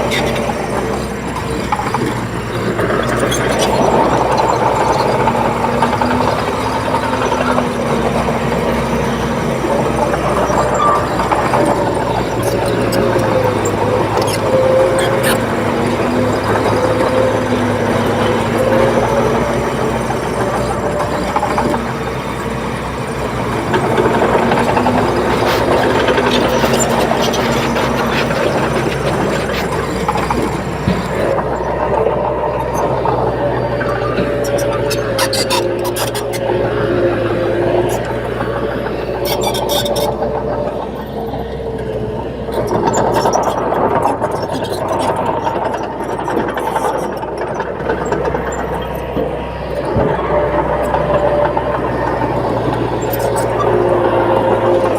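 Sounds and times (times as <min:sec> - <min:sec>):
bulldozer diesel engine running: 0:00.0 - 0:54.9.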